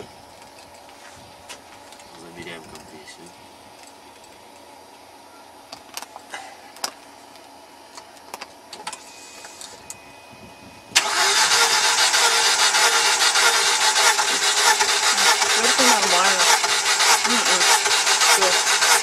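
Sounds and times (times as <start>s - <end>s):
engine running: 10.8s - 19.0s
engine cranking on starter: 11.0s - 19.0s.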